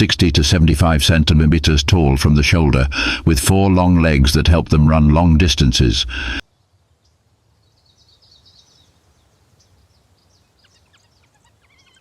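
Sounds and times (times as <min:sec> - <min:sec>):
high bird chirps: 0:07.6 - 0:12.0.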